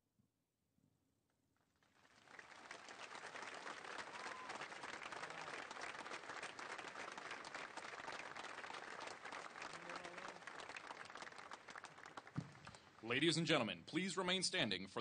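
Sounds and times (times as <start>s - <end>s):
audience applauding: 1.8s - 13.2s.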